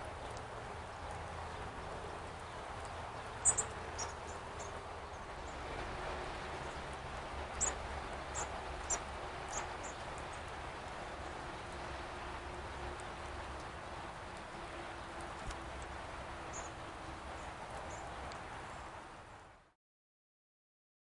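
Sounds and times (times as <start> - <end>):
songbird high call notes: 3.4 - 4.2.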